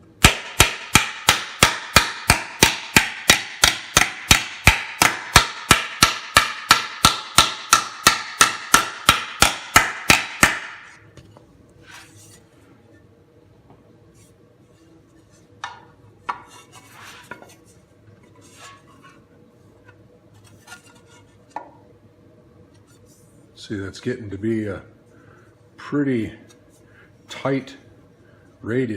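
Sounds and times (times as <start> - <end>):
hammer striking sheet metal: 0.2 - 11.0.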